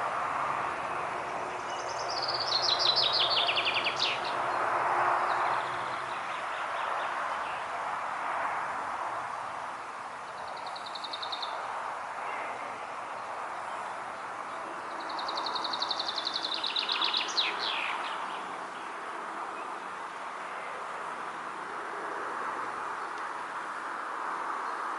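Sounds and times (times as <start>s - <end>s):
wind: 0.0s - 24.9s
songbird trilling: 1.6s - 4.4s, 15.0s - 18.3s.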